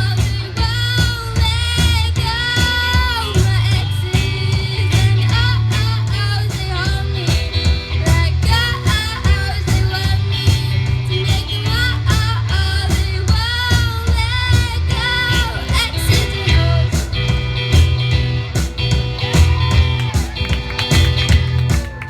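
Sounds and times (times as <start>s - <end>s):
woman singing: 0.0s - 17.4s
bass guitar: 0.0s - 22.0s
drums: 0.0s - 22.0s
electric guitar: 0.0s - 22.0s.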